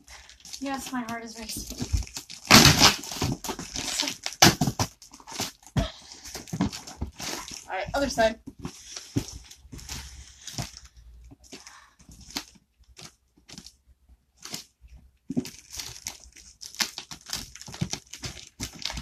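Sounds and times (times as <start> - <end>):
wrapping crinkling: 0.0 - 19.0
tape and cardboard tearing: 1.4 - 5.8.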